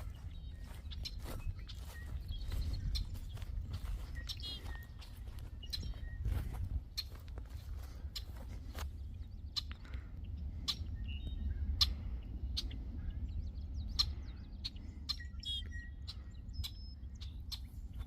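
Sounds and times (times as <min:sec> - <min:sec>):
footsteps on trail: 0:00.0 - 0:10.1
songbirds chirping: 0:00.0 - 0:18.0.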